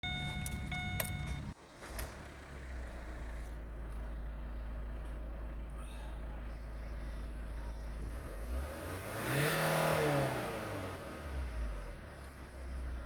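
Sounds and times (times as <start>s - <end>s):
high beeping tone: 0.0s - 1.5s
diesel engine idling: 0.0s - 9.0s.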